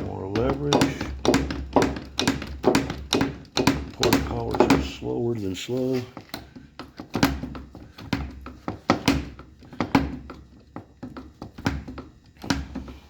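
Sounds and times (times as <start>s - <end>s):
metal knocks and clunks: 0.0s - 5.1s.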